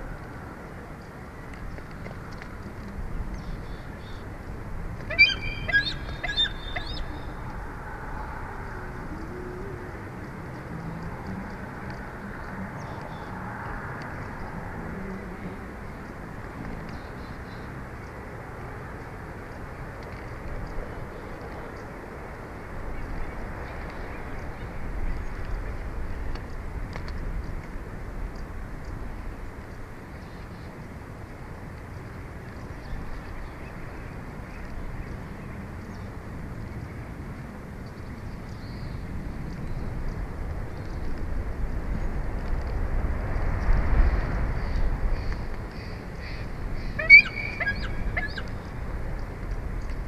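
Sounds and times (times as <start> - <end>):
low background noise: 0.0 - 50.0
wind rushing over microphone: 0.0 - 50.0
eagle piping chirps: 5.1 - 7.4, 46.9 - 48.5.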